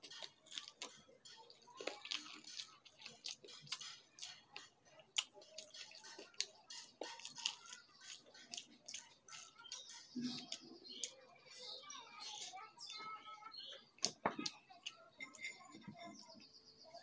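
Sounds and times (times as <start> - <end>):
person chewing with mouth clicks: 0.0 - 11.2.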